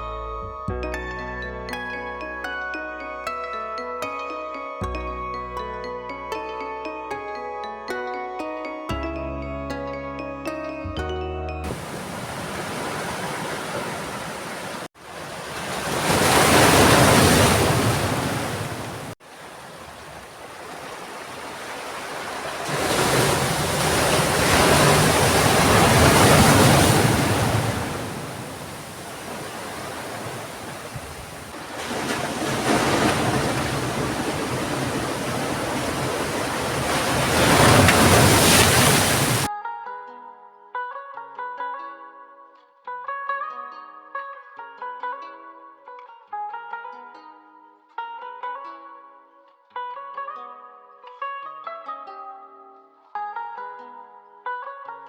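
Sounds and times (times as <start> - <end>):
waves breaking on shore: 11.7 - 39.5.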